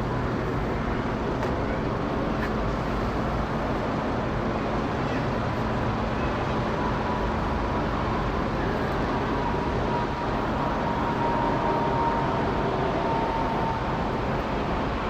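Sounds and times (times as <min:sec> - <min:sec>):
jet engines passing overhead: 0:00.0 - 0:15.0
faint high whine: 0:06.1 - 0:15.0.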